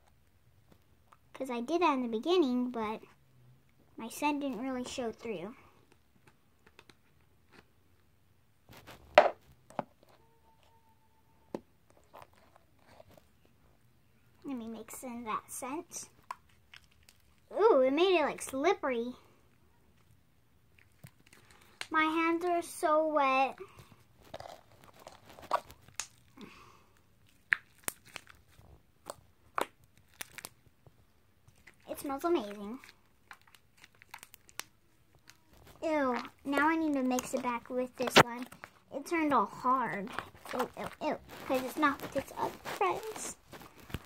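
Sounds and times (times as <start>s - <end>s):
faint steady tone: 10.0s - 11.9s.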